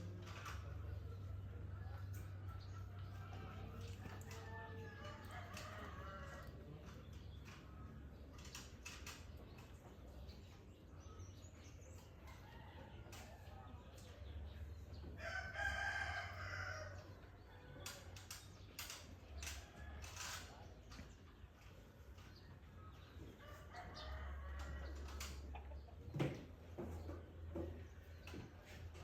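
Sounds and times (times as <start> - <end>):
rooster crowing: 15.2 - 17.1
faint bird chirps and clicks: 17.0 - 23.1.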